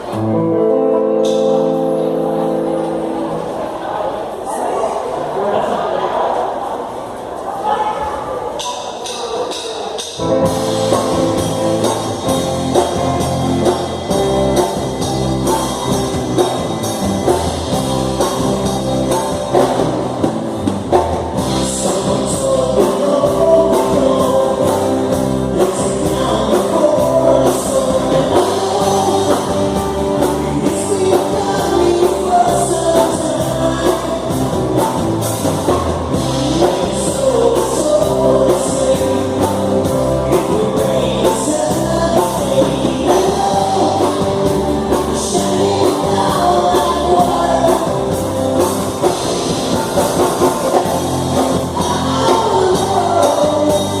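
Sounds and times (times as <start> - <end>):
live rock band playing: 0.0 - 3.6, 9.9 - 54.0
person singing: 21.2 - 54.0.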